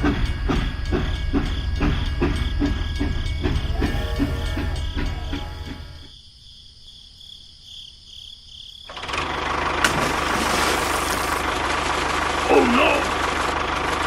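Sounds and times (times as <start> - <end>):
small tractor engine running: 8.9 - 14.0.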